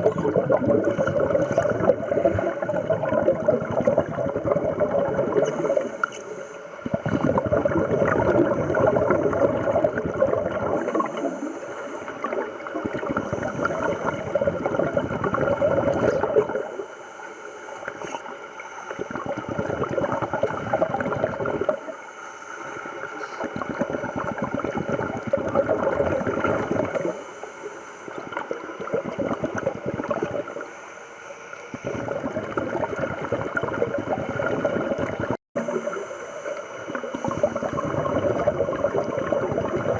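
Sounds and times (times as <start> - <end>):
bubbling exhalations underwater: 0.0 - 6.0, 6.8 - 16.7, 18.9 - 21.9, 23.0 - 27.2, 28.2 - 30.6, 31.8 - 36.1, 36.9 - 39.9
hissing regulator inhalation: 5.3 - 6.7, 10.7 - 12.4, 35.7 - 39.2.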